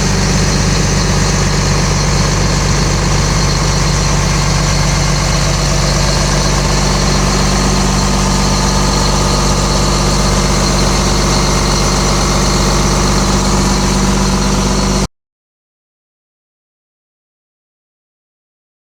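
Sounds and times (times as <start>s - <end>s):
diesel engine running: 0.0s - 15.1s.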